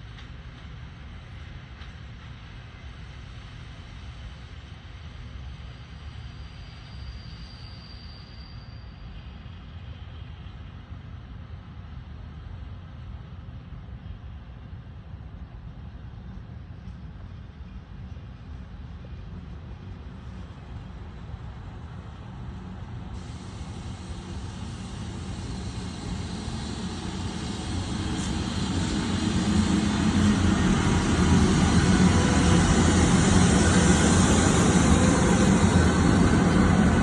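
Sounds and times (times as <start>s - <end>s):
electric locomotive running: 17.7s - 37.0s.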